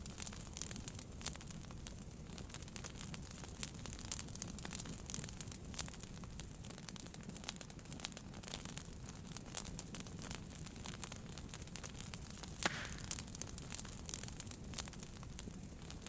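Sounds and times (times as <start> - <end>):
fire crackles and pops: 0.0 - 16.0
low rumble of flames: 0.0 - 16.0
brief fire hiss: 12.6 - 13.1.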